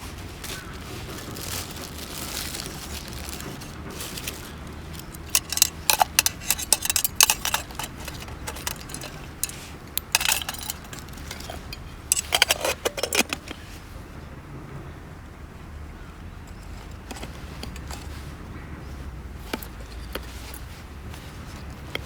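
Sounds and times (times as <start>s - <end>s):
utensils clinking and rattling: 0.9s - 13.9s, 16.5s - 18.4s, 19.4s - 22.0s.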